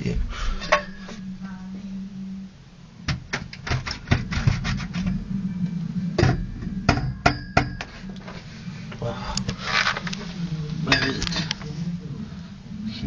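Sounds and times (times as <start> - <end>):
low steady hum: 0.0 - 13.0
hard objects knocking and clattering: 3.1 - 5.2.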